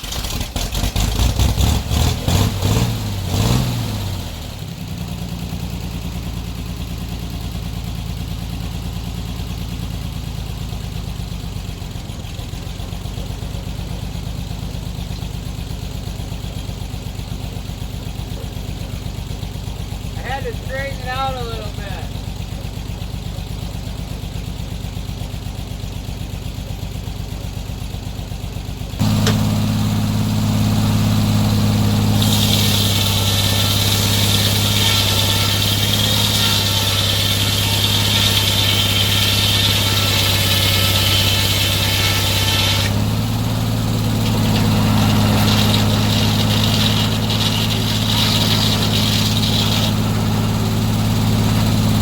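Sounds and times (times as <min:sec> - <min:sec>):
sawmill engine: 0:00.0 - 0:52.0
saw blade cutting log hiss: 0:29.0 - 0:52.0.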